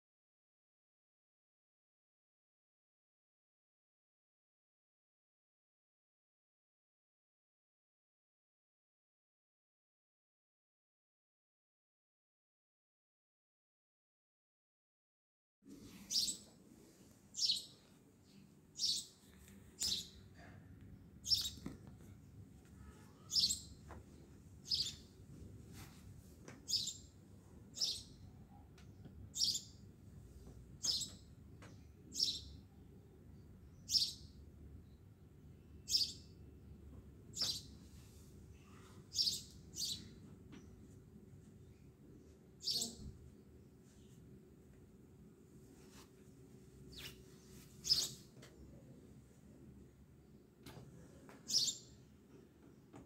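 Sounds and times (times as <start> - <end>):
bird chirping high notes: 22.8 - 23.6.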